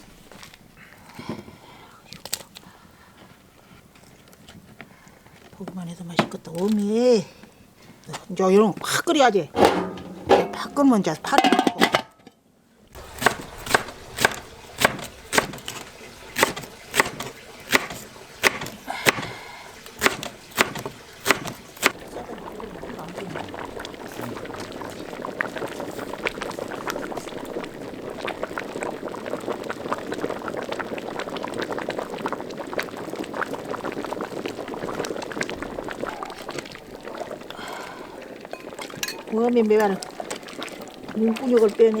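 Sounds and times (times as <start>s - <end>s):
stew bubbling at a hard boil: 0.0s - 11.8s, 12.9s - 42.0s
knife chopping: 13.0s - 22.0s.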